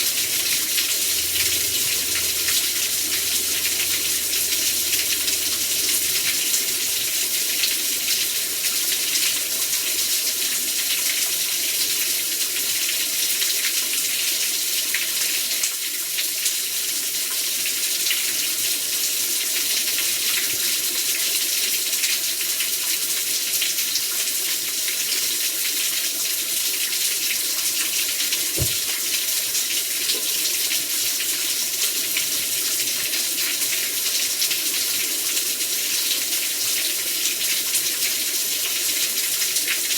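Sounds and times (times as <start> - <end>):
heavy rain pouring: 0.0 - 11.3, 28.5 - 29.2
low thump: 28.6 - 28.9.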